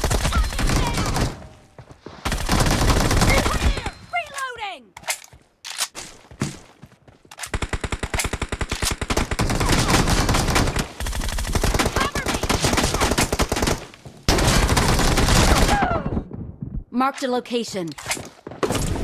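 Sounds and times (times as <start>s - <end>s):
video game automatic gunfire: 0.0s - 1.4s, 2.3s - 3.8s, 7.5s - 15.8s.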